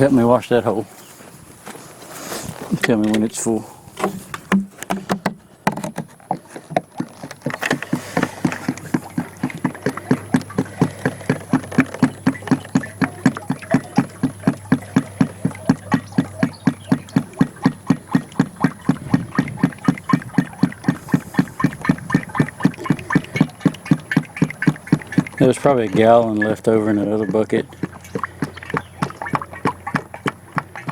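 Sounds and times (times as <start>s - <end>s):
tractor engine idling: 6.3s - 30.9s.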